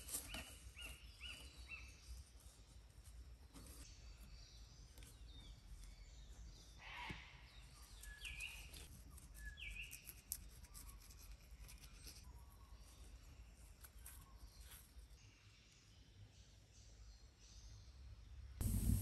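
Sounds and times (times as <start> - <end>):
low background hiss: 18.3 - 19.0.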